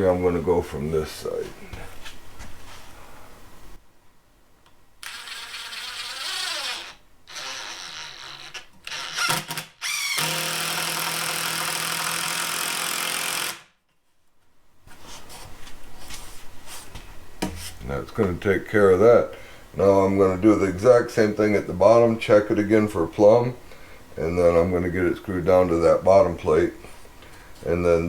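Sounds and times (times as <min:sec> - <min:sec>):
power drill driving screw into wood: 0:05.0 - 0:08.2, 0:08.8 - 0:13.7.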